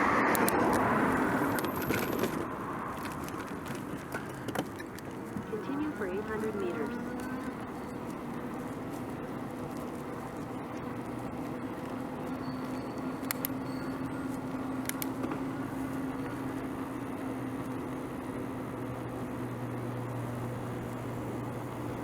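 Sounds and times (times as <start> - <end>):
road traffic noise: 0.0 - 22.0
sharp clicks: 0.2 - 0.9, 12.7 - 13.6, 14.8 - 15.3.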